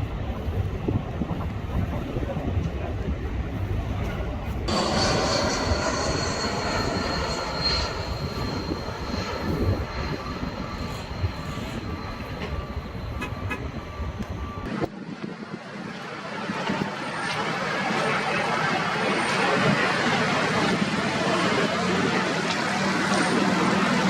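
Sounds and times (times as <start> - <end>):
truck engine rumbling: 3.8 - 14.7
thin high whine: 4.7 - 14.7.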